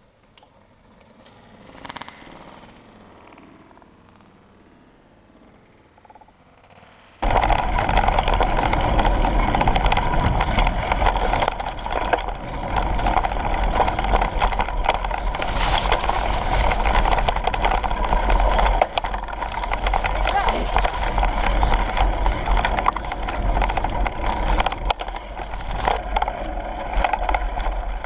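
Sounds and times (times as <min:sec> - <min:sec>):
bike rattles and clicks: 0:00.0 - 0:28.0
wind buffeting microphone: 0:07.2 - 0:28.0.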